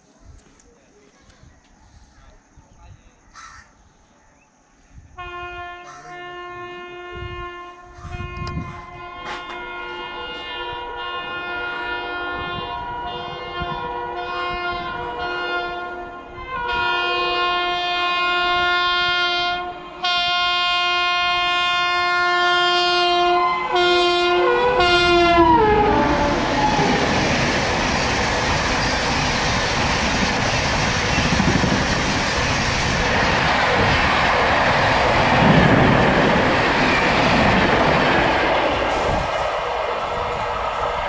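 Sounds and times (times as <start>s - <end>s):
train horn: 5.2s - 27.4s, 38.3s - 41.0s
train rushing and clattering past: 23.6s - 41.0s.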